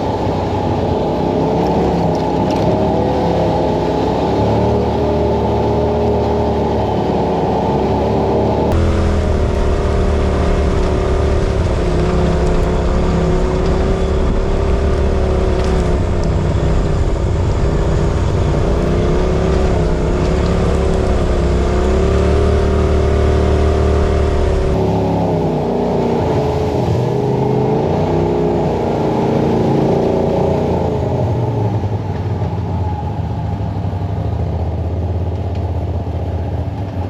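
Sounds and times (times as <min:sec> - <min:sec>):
utility vehicle engine running: 0:00.0 - 0:25.5.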